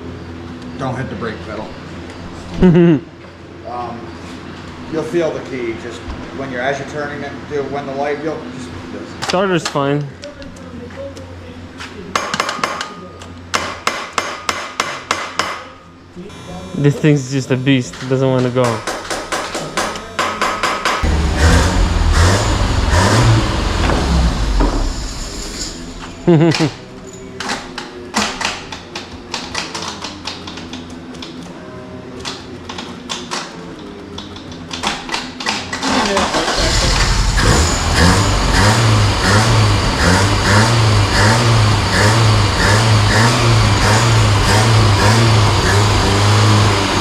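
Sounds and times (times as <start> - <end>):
car engine cranking and running: 21.0 - 25.9, 35.8 - 47.0.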